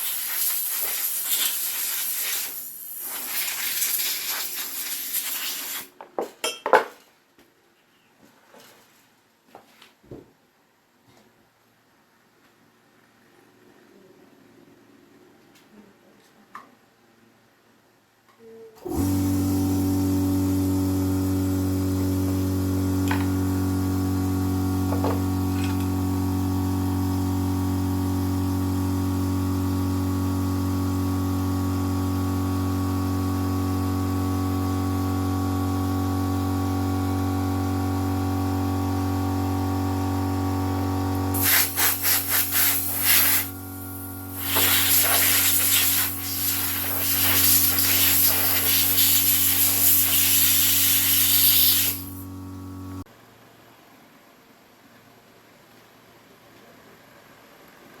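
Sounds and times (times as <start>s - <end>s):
machine hum: 30.3s - 53.1s.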